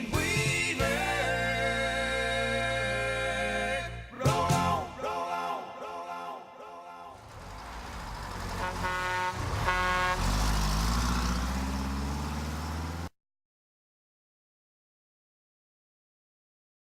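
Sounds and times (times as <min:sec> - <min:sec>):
engine speeding up: 0:07.2 - 0:13.1
vehicle horn blasts: 0:08.5 - 0:10.5.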